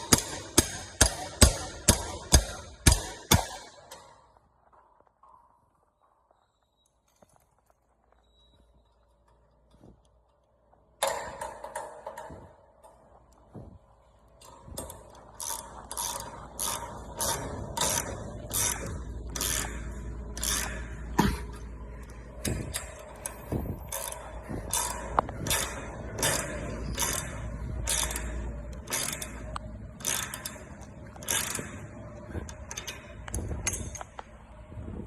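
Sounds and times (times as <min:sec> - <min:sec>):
garage door spring ratcheting: 0:00.0 - 0:04.4, 0:11.0 - 0:13.4, 0:14.1 - 0:34.4.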